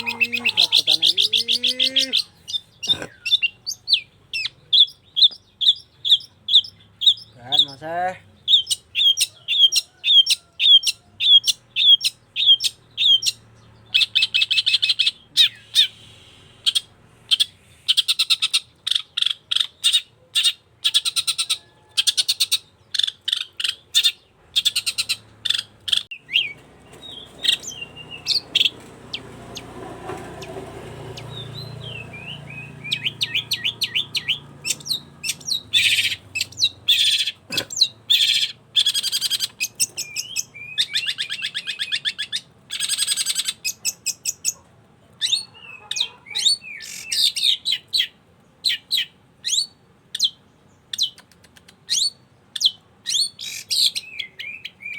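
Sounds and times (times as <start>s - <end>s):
shrike singing: 0.0s - 17.5s, 23.7s - 44.1s.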